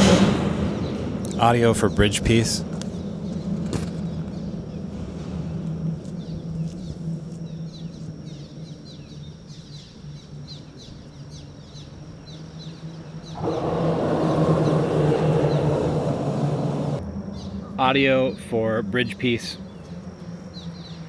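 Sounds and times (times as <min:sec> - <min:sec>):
even rushing noise: 0:00.0 - 0:03.3, 0:13.3 - 0:17.0
birds chirping: 0:00.0 - 0:21.0
steady low hum: 0:00.0 - 0:21.0.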